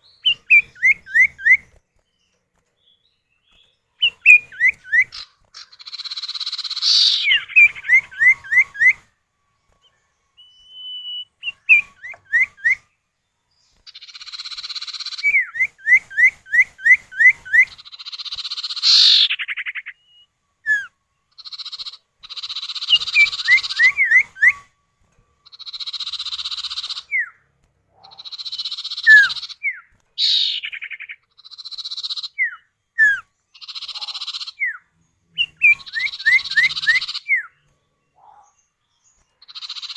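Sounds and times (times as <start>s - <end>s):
bird buzzy rasping calls: 4.0s - 9.1s, 13.8s - 20.1s, 21.3s - 24.7s, 25.4s - 34.8s, 35.4s - 37.6s, 39.4s - 39.9s
bird rising whistles: 10.4s - 12.9s, 22.7s - 24.8s, 28.3s - 31.1s.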